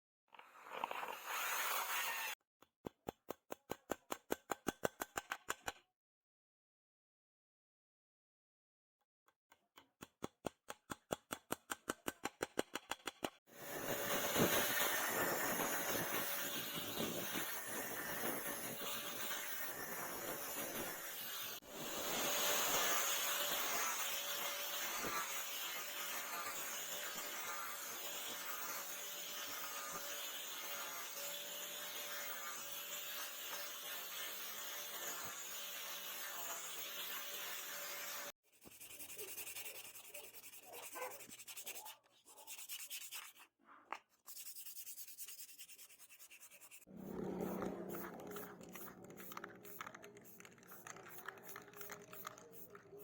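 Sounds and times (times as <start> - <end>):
power tool grinding: 13.5 - 38.3, 46.8 - 53.0.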